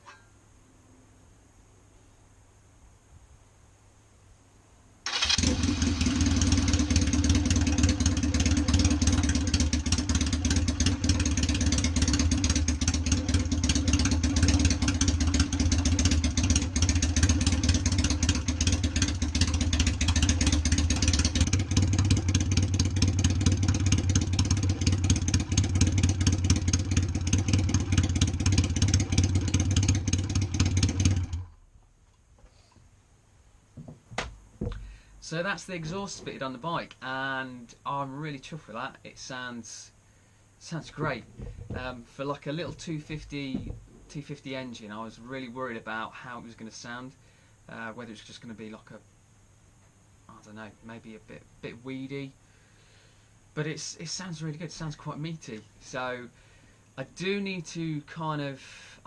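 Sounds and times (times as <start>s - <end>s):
motorcycle engine running: 5.1s - 31.6s.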